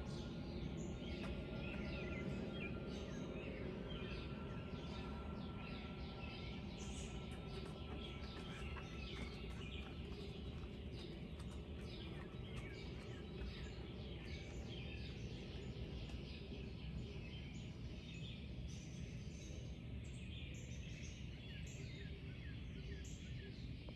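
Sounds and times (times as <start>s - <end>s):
low background rumble: 0.0s - 22.0s
songbirds chirping and trilling: 0.0s - 23.9s.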